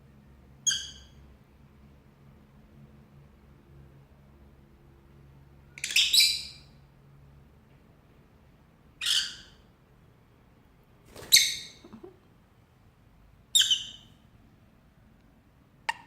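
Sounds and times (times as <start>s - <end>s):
lovebird high-pitched calls: 0.6s - 1.2s, 5.7s - 6.8s, 9.0s - 9.6s, 11.2s - 11.8s, 13.5s - 14.2s.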